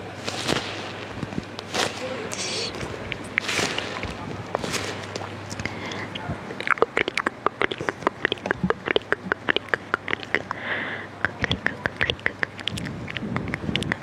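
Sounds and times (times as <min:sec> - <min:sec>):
breathy hiss: 0:02.0 - 0:02.8, 0:04.9 - 0:06.3, 0:10.5 - 0:11.2
wet mouth clicks and smacks: 0:05.5 - 0:10.6, 0:11.2 - 0:14.0.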